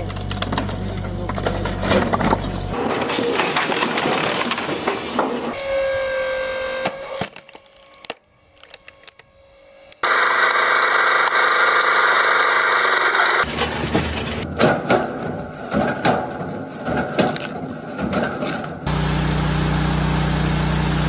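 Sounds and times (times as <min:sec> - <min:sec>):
wood cracking and splintering: 0:00.0 - 0:05.6, 0:07.1 - 0:09.2, 0:13.4 - 0:18.8
loud machine noise: 0:05.5 - 0:14.5, 0:18.8 - 0:21.0.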